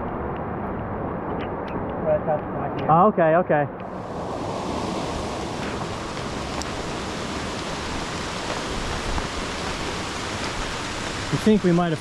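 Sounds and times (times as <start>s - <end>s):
heavy rain falling: 3.9s - 12.0s.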